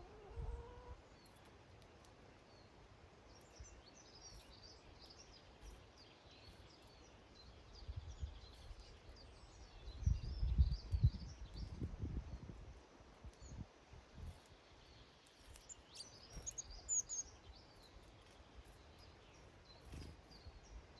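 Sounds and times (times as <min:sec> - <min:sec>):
small birds chirping: 0:03.3 - 0:12.6, 0:13.3 - 0:20.9.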